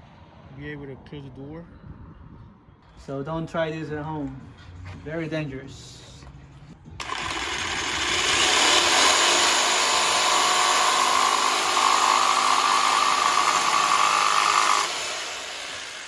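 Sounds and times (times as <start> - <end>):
power tool grinding with whine: 7.0 - 16.0.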